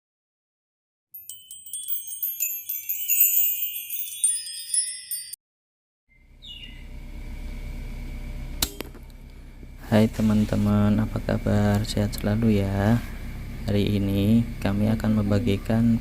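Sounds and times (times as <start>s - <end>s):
shimmering bell chimes: 1.2s - 5.4s
low steady rumble: 6.2s - 16.0s.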